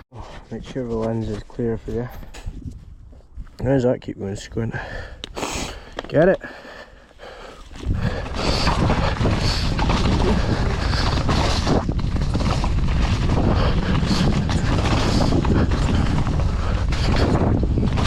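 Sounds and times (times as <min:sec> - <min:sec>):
wind rushing over microphone: 0:00.3 - 0:05.8, 0:07.6 - 0:18.0
bike rattling over rough ground: 0:05.7 - 0:18.0.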